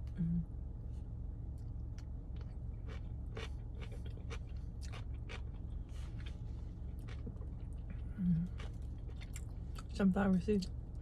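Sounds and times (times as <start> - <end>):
low hum: 0.0 - 11.0
chewing food: 1.6 - 10.0.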